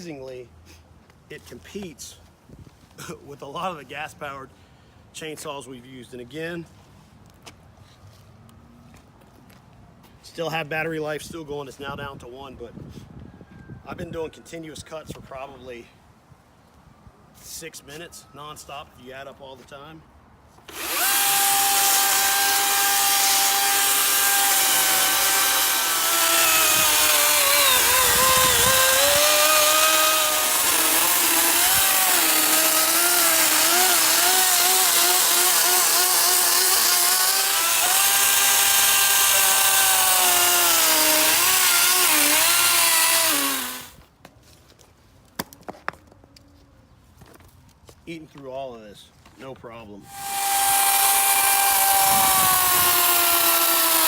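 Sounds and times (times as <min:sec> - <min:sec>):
electric chainsaw cutting wood: 0:20.7 - 0:44.0, 0:50.1 - 0:54.0.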